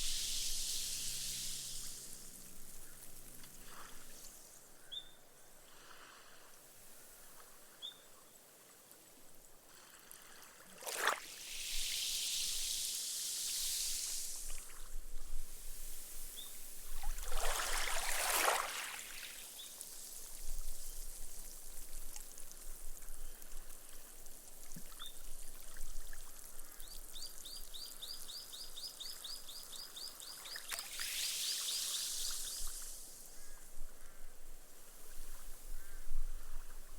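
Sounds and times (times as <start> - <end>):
small waves washing up sand: 9.7 - 14.9, 15.5 - 20.4, 30.4 - 33.6.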